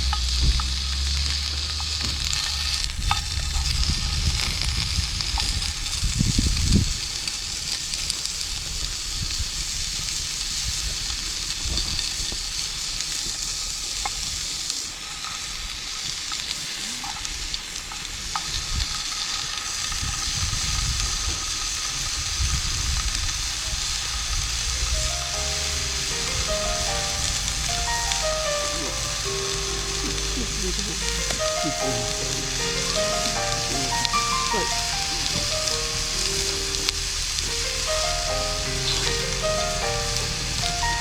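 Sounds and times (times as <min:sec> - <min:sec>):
low rumbles: 0:00.0 - 0:05.7, 0:23.3 - 0:41.0
campfire crackling and hissing: 0:00.0 - 0:41.0.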